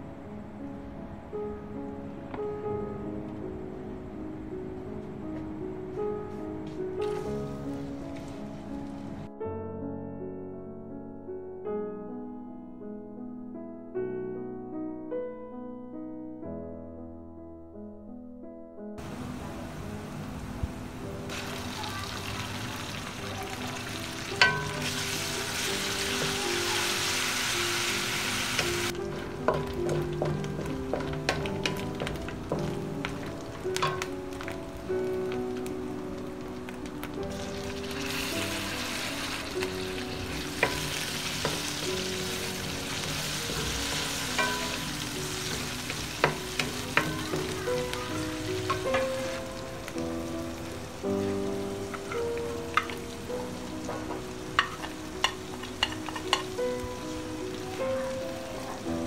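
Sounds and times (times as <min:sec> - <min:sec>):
food sizzling in hot oil: 0:07.0 - 0:09.3, 0:19.0 - 0:59.0
spoon knocking on pan: 0:24.2 - 0:34.5, 0:39.6 - 0:49.5, 0:53.8 - 0:56.6.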